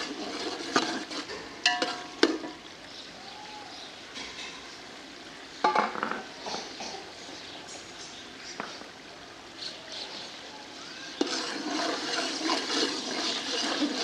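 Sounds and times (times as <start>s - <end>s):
metal ladle clinking on pot: 1.6s - 2.5s
potatoes sizzling in oil: 10.8s - 14.0s.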